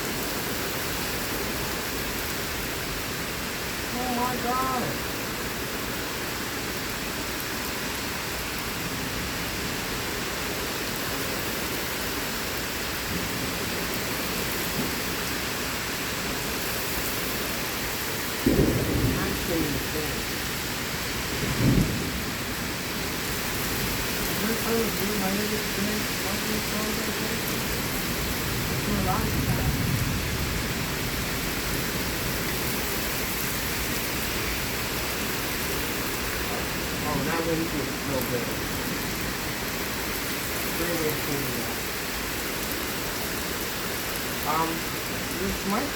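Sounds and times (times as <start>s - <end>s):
heavy rain pouring: 0.0s - 45.9s
gusty wind: 16.0s - 25.0s, 25.6s - 45.9s.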